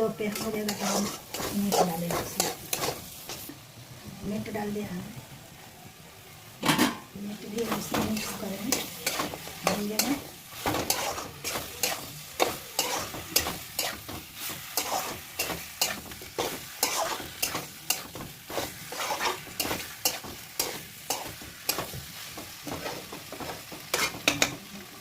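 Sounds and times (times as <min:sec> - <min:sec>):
chicken sizzling in a wok: 0:00.0 - 0:25.0
utensil scraping a pan: 0:00.2 - 0:03.5, 0:07.6 - 0:22.0, 0:22.6 - 0:24.5.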